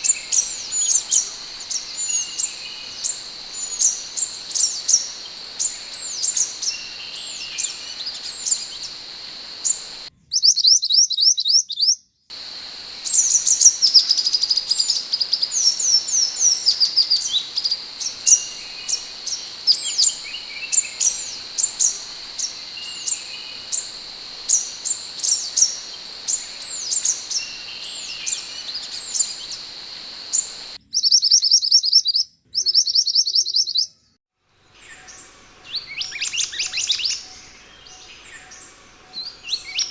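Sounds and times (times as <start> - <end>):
bird calling high thin chirps: 0.0 - 10.1, 12.3 - 30.8.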